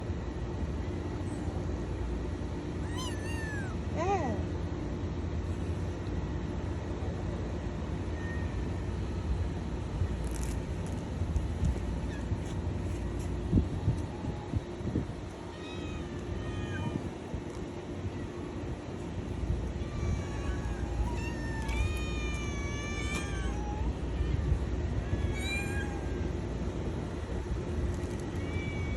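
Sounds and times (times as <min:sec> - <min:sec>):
low background rumble: 0:00.0 - 0:28.9
kitten meowing: 0:02.8 - 0:03.8, 0:19.8 - 0:24.3, 0:25.1 - 0:26.1.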